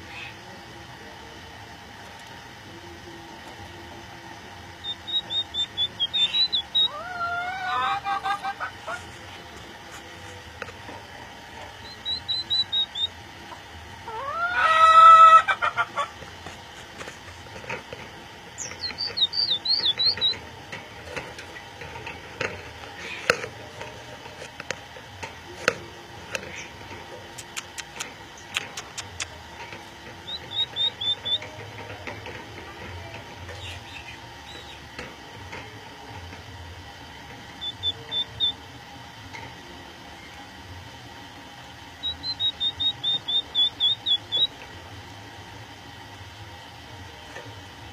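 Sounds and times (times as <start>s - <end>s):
budgerigars chirping: 4.8s - 8.3s, 11.8s - 13.2s, 18.6s - 20.4s, 30.2s - 31.5s, 37.6s - 38.6s, 42.0s - 44.5s.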